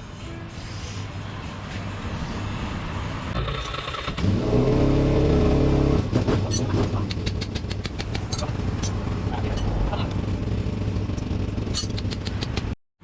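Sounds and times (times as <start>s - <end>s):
motorbike engine running: 5.5s - 12.8s
sharp clicks: 11.2s - 12.8s.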